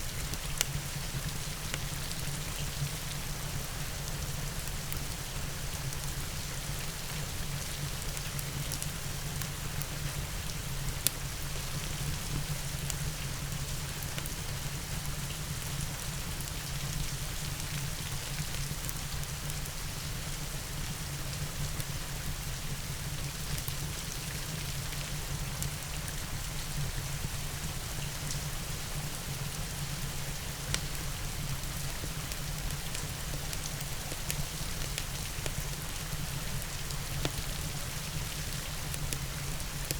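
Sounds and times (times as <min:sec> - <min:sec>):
steady rain falling: 0:00.0 - 0:39.9
wood fire crackling: 0:30.0 - 0:39.9.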